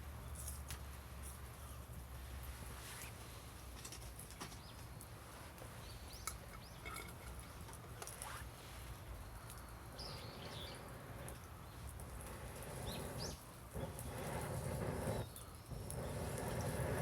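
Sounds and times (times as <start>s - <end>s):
bird chirping: 9.9s - 10.9s, 12.8s - 14.3s.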